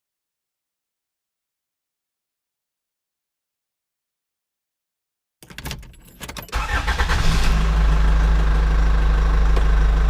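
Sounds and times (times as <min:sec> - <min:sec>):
engine starting and idling: 0:06.2 - 0:10.0.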